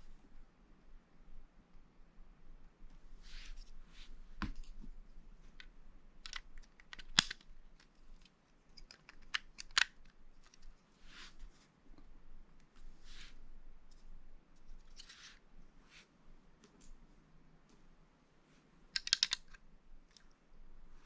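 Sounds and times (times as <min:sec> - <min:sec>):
soft rustling of pieces: 0:02.8 - 0:21.0
plastic bricks clicking together: 0:08.8 - 0:10.6, 0:19.0 - 0:20.2.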